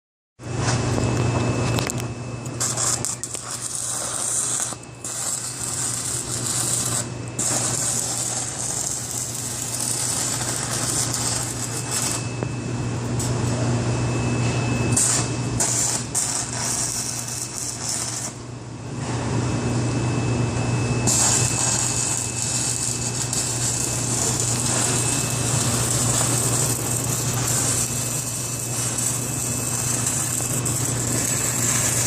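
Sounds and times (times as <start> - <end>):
low hum: 0.4 - 18.8
welding arc crackling hiss: 1.7 - 12.3, 14.9 - 18.5, 21.0 - 32.0.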